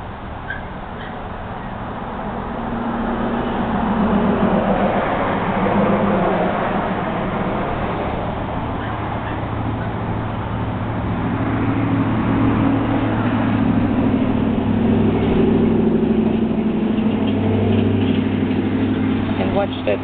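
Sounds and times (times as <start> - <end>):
vehicle engine droning: 0.0 - 20.0.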